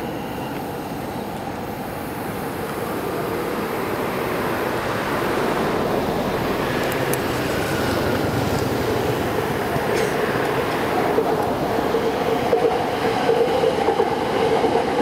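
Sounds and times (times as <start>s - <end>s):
faint high whine: 0.0s - 8.6s
train wheels rumbling on rails: 0.0s - 15.0s.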